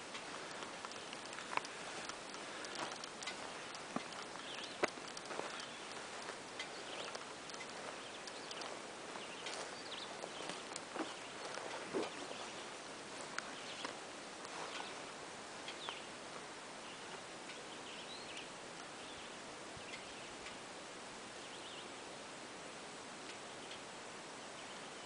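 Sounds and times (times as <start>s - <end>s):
steady background hiss: 0.0s - 25.0s
high bird chirps: 2.8s - 6.0s, 6.6s - 12.7s.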